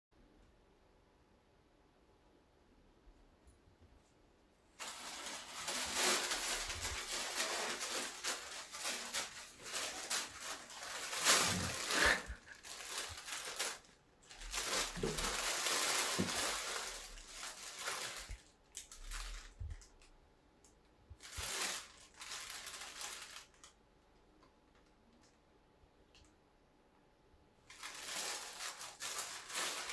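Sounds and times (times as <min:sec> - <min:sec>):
cat rustling crinkly material: 0:04.7 - 0:20.0, 0:21.2 - 0:23.8, 0:27.6 - 0:29.9.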